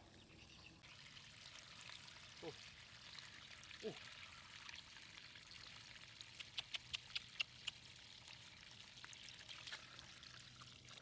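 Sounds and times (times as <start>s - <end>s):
faint flowing water: 0.0s - 11.0s
small sharp ticks: 6.3s - 7.8s.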